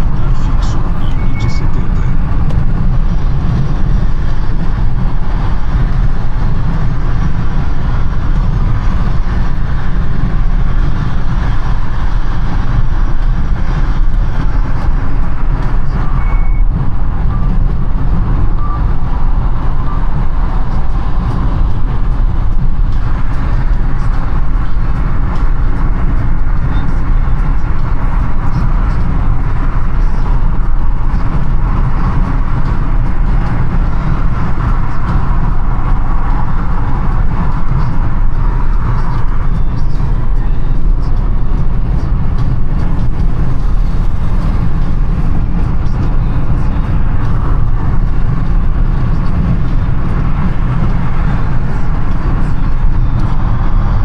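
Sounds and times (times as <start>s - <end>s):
car driving in traffic: 0.0s - 54.0s
short electronic beep: 0.4s - 2.2s, 16.0s - 17.6s, 18.5s - 19.0s.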